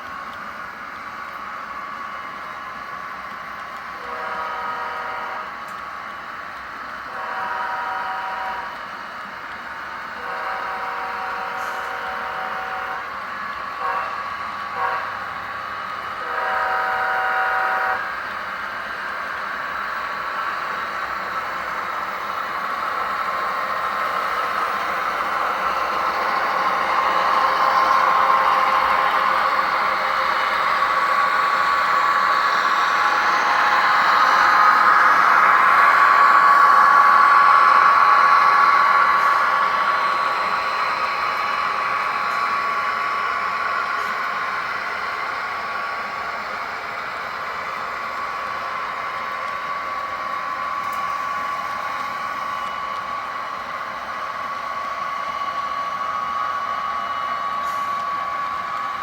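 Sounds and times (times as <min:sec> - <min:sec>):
model train running on track: 0:00.0 - 0:59.0
model train horn chord: 0:04.0 - 0:05.5, 0:07.1 - 0:08.7, 0:10.2 - 0:13.1, 0:13.8 - 0:15.2, 0:16.2 - 0:18.1.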